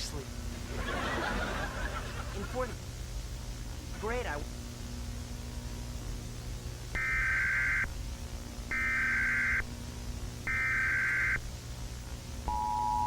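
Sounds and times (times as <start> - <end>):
buzzing digital data tones: 6.9 - 8.0, 8.7 - 9.7, 10.4 - 11.5
two-tone attention signal: 12.5 - 13.0.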